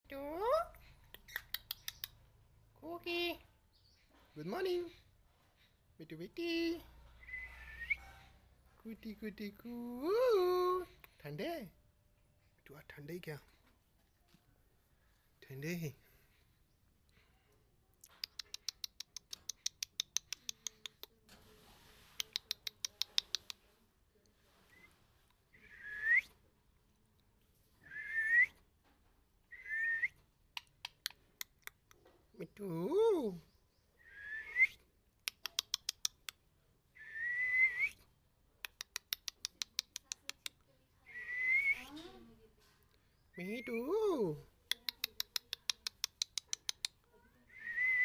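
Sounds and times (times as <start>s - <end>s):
parrot quick sharp clicks: 22.2s - 23.6s.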